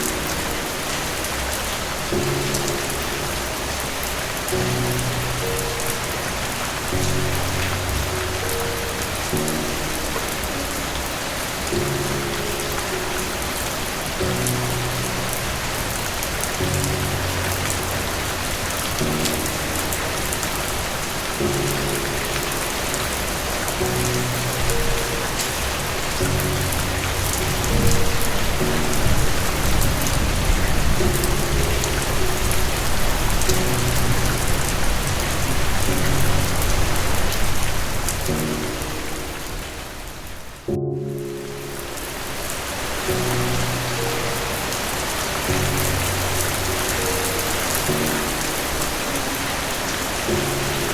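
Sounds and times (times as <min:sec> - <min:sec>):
soft low music chords: 0:00.0 - 0:50.9
steady rain falling: 0:00.0 - 0:50.9
distant thunder rumble: 0:02.2 - 0:40.4.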